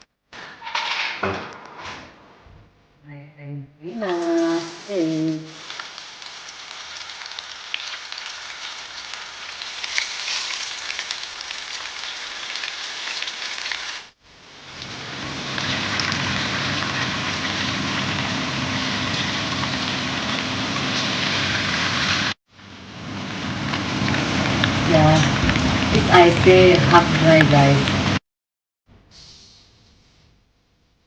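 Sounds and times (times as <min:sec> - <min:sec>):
fish sizzling in a pan: 0:04.1 - 0:25.1.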